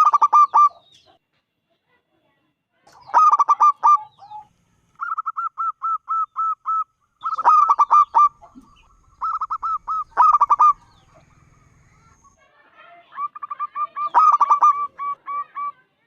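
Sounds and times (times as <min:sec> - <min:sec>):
dove cooing: 0:00.0 - 0:00.8, 0:03.1 - 0:12.4, 0:13.1 - 0:15.8.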